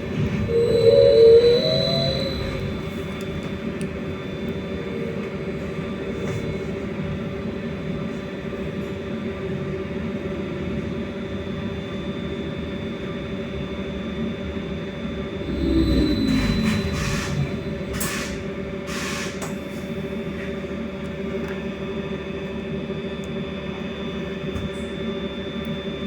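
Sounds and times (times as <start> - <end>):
electric hum and whine: 0.0 - 18.9
trolleybus low rumble: 0.0 - 26.0.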